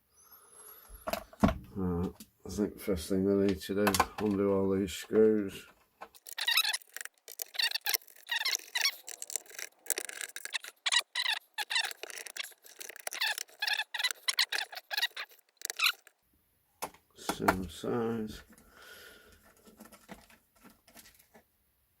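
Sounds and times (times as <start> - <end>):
screwdriver squeaking screws out: 6.2 - 16.1.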